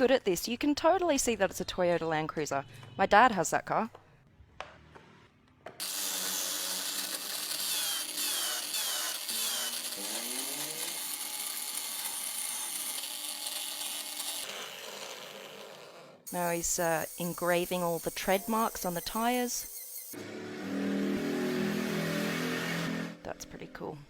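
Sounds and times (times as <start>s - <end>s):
power tool cutting wood: 5.8s - 23.3s.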